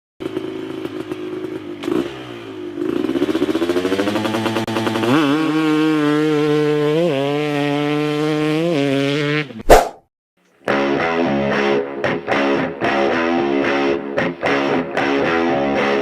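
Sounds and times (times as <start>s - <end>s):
dirt bike engine revving: 0.2s - 10.0s.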